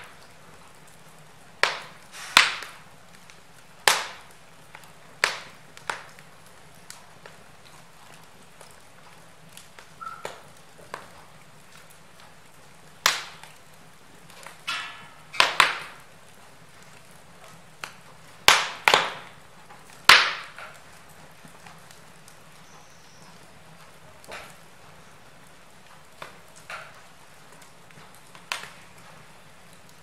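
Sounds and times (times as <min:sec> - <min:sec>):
logs crackling in fireplace: 0:00.0 - 0:30.0
low steady fire hiss: 0:00.0 - 0:30.0
sharp pops of burning wood: 0:00.0 - 0:30.0.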